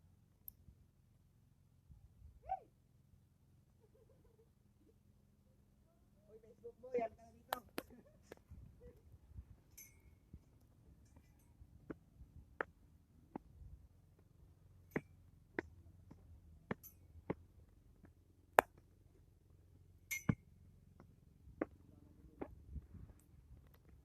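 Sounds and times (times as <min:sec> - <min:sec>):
sharp clicks and clinks: 0:09.7 - 0:10.3, 0:20.0 - 0:20.5.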